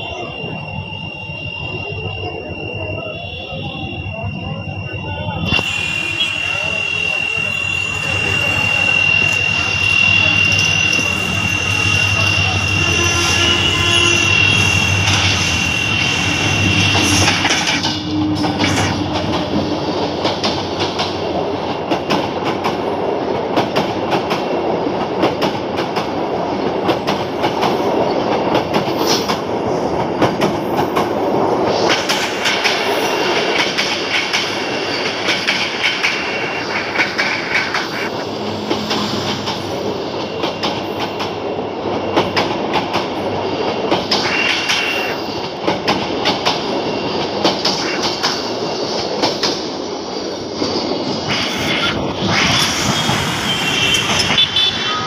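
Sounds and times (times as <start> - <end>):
high wheel squeal: 0.0 - 21.1, 31.7 - 42.4, 43.2 - 45.6, 51.2 - 55.0
train wheels rumbling on rails: 0.0 - 55.0.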